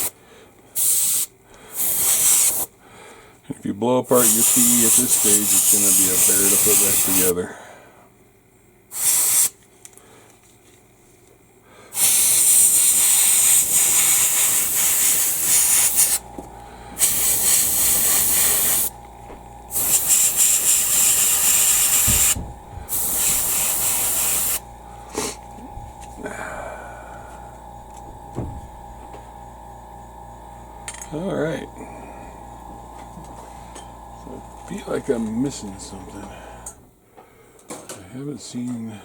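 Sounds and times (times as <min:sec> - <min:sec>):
airbrush hissing: 0:00.8 - 0:02.7, 0:04.1 - 0:07.4, 0:08.9 - 0:09.5, 0:12.0 - 0:26.2.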